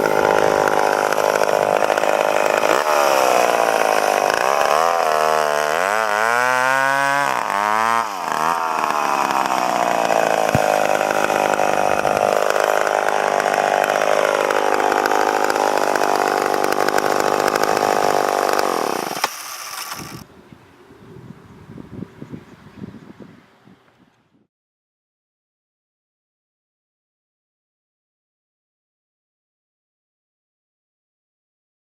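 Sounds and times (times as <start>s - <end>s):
chainsaw running at high revs: 0.0s - 20.2s.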